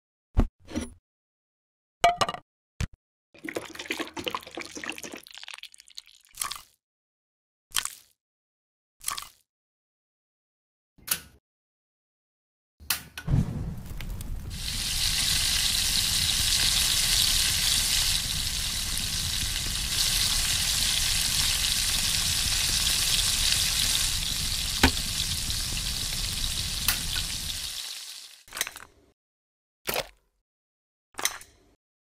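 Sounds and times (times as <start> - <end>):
food sizzling in hot oil: 3.4 - 6.2, 13.8 - 28.5.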